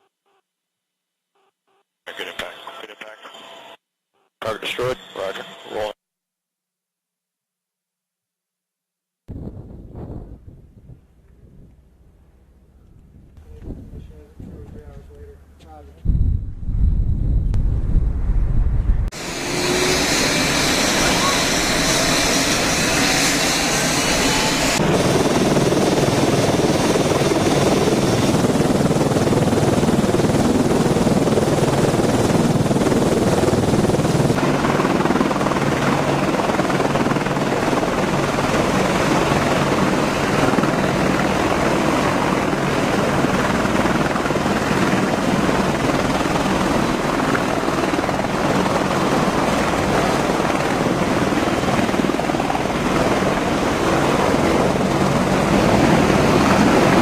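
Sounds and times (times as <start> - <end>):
helicopter rotor and engines running: 4.4 - 5.9, 19.1 - 57.0.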